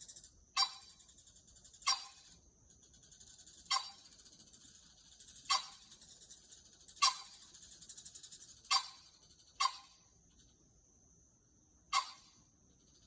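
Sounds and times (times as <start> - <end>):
pheasant harsh calls: 0.6 - 1.0, 1.7 - 2.3, 3.6 - 4.2, 5.3 - 6.0, 6.9 - 7.6, 8.6 - 10.0, 11.9 - 12.4.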